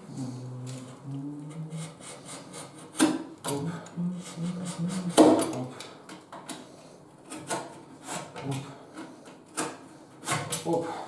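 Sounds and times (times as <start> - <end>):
wood rubbing and scraping: 4.0 - 5.7.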